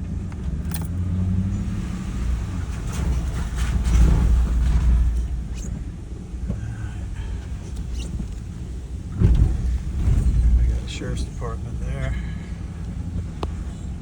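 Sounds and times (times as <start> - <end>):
vehicle driving rumble: 0.0 - 14.0.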